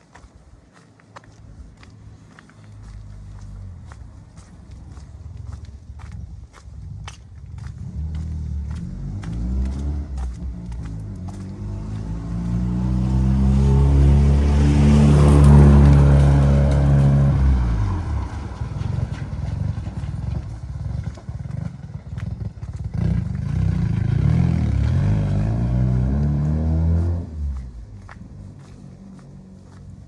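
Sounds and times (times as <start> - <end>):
low engine rumble pulling away: 1.6 - 30.0
vehicle passing on wet road: 7.0 - 30.0.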